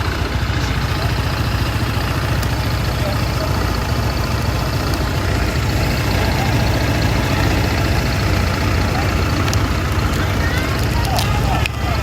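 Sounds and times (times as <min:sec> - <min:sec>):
road noise hiss: 0:00.0 - 0:12.0
vehicle engine rumbling: 0:00.0 - 0:12.0.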